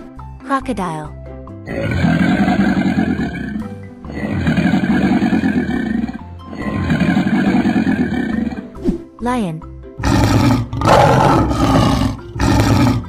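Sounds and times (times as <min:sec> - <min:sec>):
background music: 0:00.0 - 0:13.0
crocodile growling: 0:01.7 - 0:08.8, 0:10.0 - 0:13.0.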